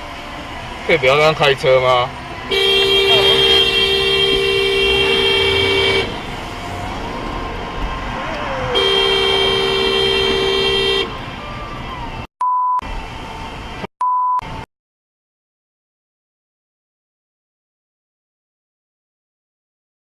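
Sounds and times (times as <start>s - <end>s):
road noise: 0.0s - 14.7s
car horn blasts: 2.5s - 6.4s, 8.7s - 11.2s
short electronic beeps: 12.4s - 12.8s, 14.0s - 14.6s.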